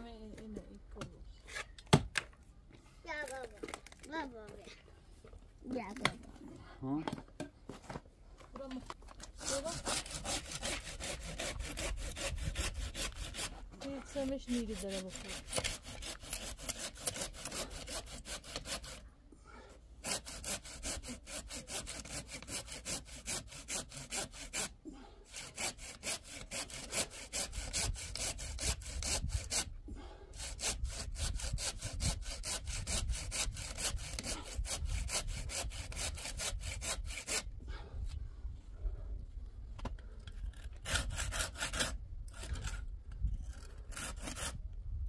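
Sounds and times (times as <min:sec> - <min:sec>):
hand saw cutting wood: 0:09.2 - 0:19.1, 0:20.0 - 0:37.6, 0:40.3 - 0:44.6.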